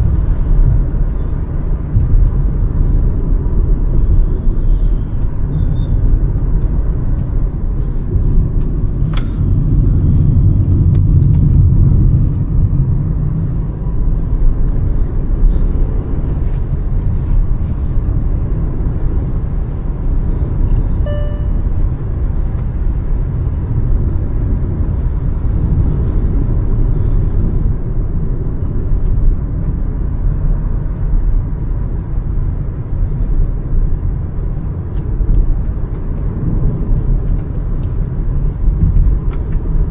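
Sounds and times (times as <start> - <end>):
car engine and road noise: 0.0 - 39.9
short beep: 20.8 - 21.8.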